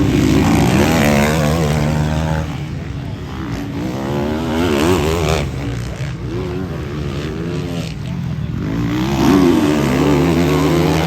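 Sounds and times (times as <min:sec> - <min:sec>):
motocross engines revving: 0:00.0 - 0:11.0.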